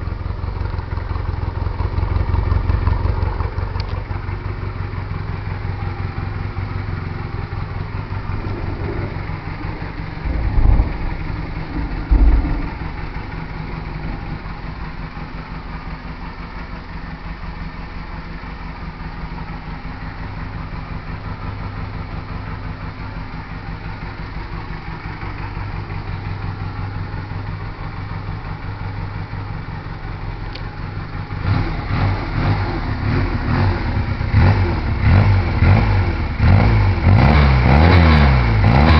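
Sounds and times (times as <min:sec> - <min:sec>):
motorcycle engine idling: 0:00.0 - 0:38.9
loud exhaust bursts: 0:07.4 - 0:14.8.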